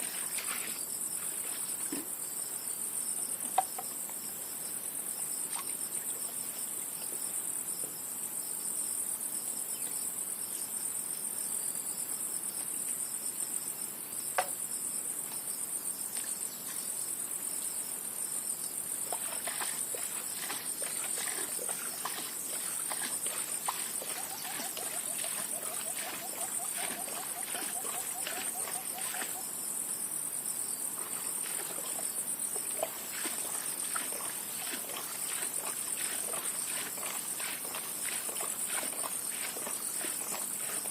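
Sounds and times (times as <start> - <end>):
crickets trilling: 0.0 - 40.9
rippling call: 20.0 - 29.5.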